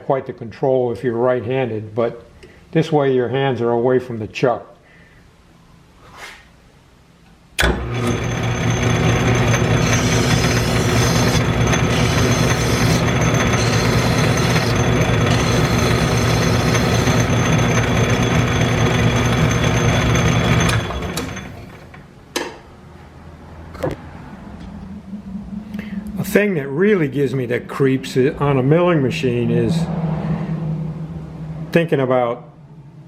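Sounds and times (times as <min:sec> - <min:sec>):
metal lathe humming: 0:07.7 - 0:22.0.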